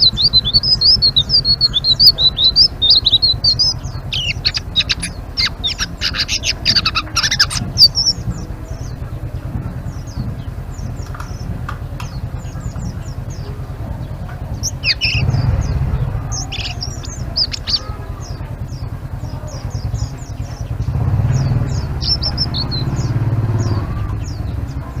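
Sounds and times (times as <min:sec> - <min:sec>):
low rumble: 0:00.0 - 0:25.0
songbird chirping: 0:00.0 - 0:25.0.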